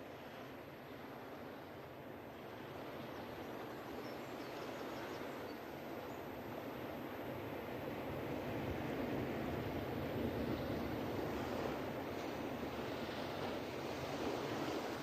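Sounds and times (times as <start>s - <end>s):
ocean surf washing on beach: 6.4s - 15.0s.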